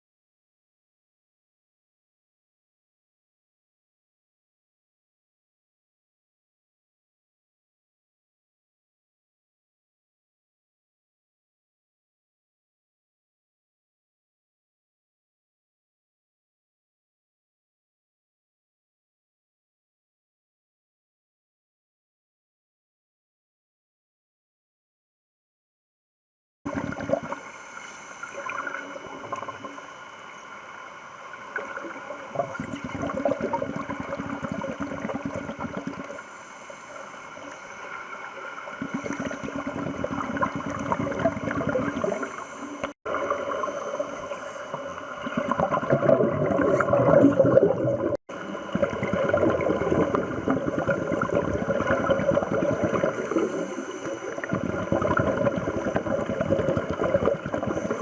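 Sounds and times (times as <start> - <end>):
exhaled bubbles gurgling underwater: 26.7 - 30.2, 31.3 - 58.0
steady hiss: 27.3 - 32.8, 36.0 - 39.7, 41.9 - 45.4, 53.0 - 54.5.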